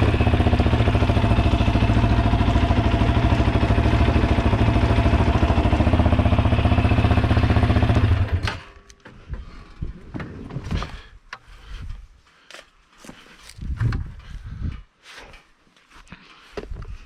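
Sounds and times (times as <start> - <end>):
vehicle engine idling: 0.0 - 8.4.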